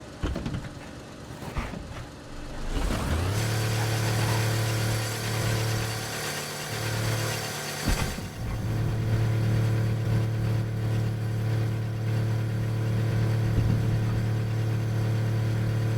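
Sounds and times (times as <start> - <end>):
car engine starting: 1.3 - 10.0.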